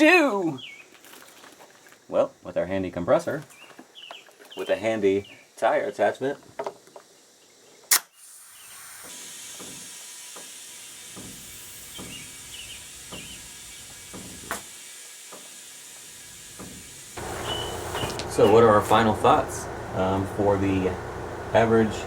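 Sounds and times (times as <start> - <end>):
sharp click: 7.9 - 8.1
compressed air hissing: 8.2 - 22.0.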